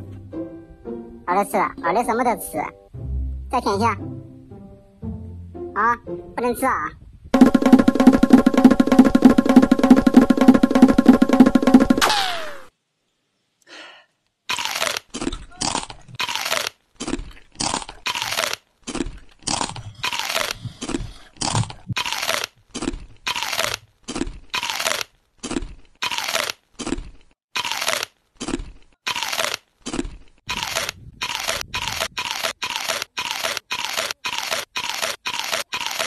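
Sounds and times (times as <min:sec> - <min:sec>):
person crunching hard chocolates: 0:14.5 - 0:36.0.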